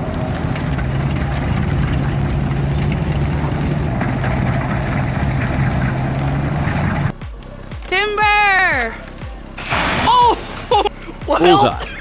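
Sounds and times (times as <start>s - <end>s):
engine running with low hum: 0.0s - 11.3s.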